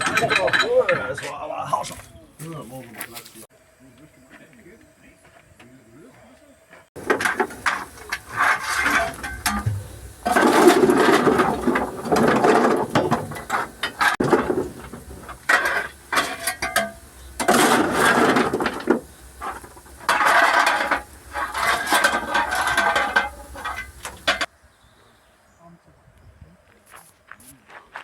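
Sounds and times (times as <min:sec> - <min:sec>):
metal rattling and clanking: 0:00.0 - 0:01.2, 0:07.0 - 0:24.5.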